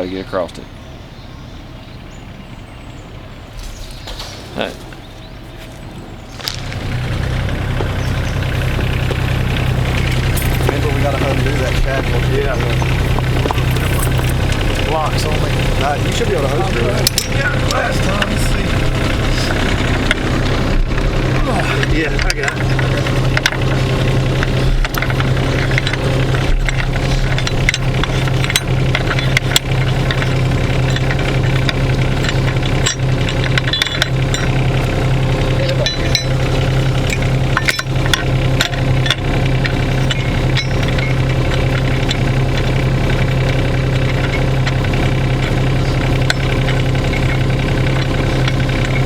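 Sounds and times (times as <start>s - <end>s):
engine running steadily: 0.0s - 49.0s.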